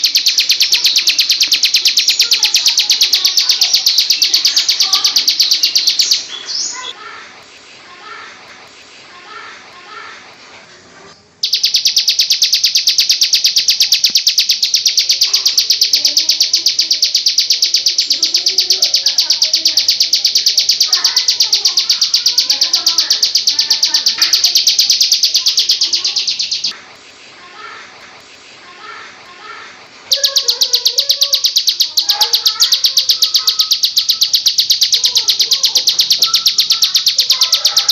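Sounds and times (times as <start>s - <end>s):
songbird rapid high trill: 0.0s - 6.9s, 11.4s - 26.7s, 30.1s - 37.9s
faint bird chirps: 0.0s - 7.0s, 11.2s - 26.8s, 30.1s - 37.9s
children's voices: 0.0s - 11.2s, 12.2s - 37.9s.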